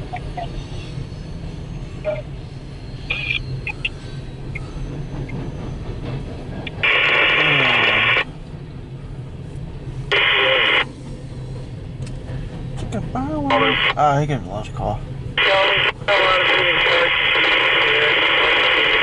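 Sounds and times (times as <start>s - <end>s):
radio static bursts: 3.1s - 3.8s, 6.7s - 8.3s, 10.1s - 10.9s, 13.5s - 14.0s, 15.4s - 19.0s
low steady rumble: 6.6s - 19.0s.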